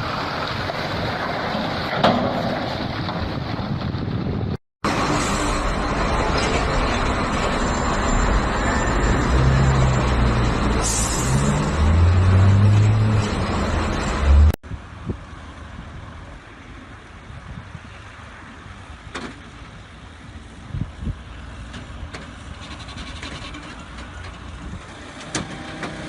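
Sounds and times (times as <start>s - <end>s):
road and mechanical noise: 0.0s - 26.0s
heavy vehicle engine revving: 4.9s - 14.6s.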